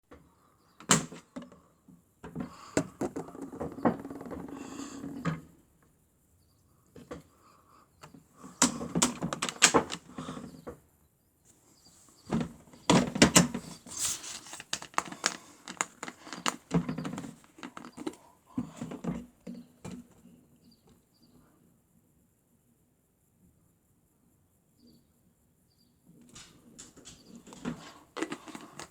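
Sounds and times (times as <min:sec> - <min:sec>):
plastic toy clicks and knocks: 0:08.6 - 0:10.1, 0:14.3 - 0:18.2, 0:26.4 - 0:28.9.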